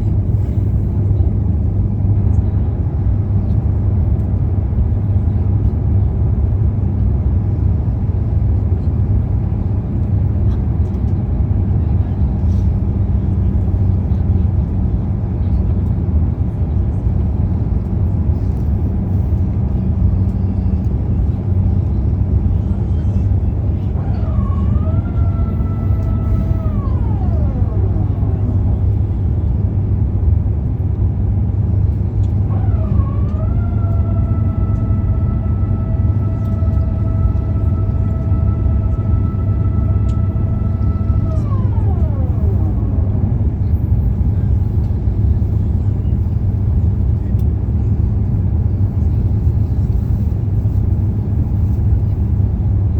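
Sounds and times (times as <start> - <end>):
vehicle rumble: 0.0 - 52.9
high whine: 32.3 - 45.2.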